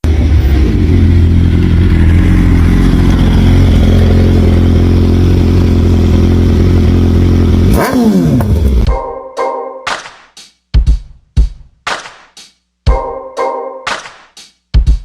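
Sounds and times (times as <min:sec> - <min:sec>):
motorcycle engine running: 0:00.0 - 0:08.9.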